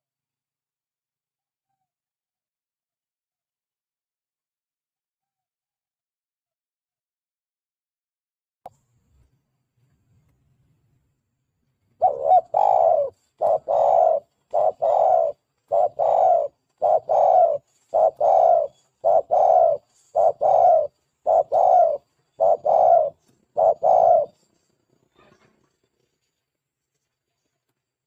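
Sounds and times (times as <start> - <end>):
dove cooing: 12.0 - 24.5.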